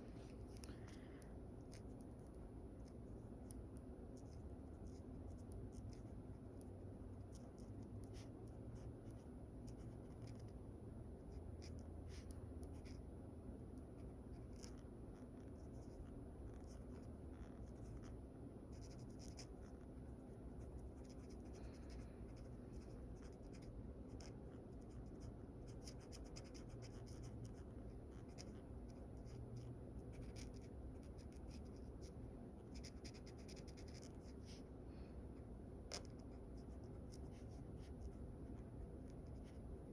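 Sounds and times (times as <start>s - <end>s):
low background hum: 0.0s - 39.9s
pencil scratching on paper: 20.7s - 32.1s, 32.7s - 34.6s.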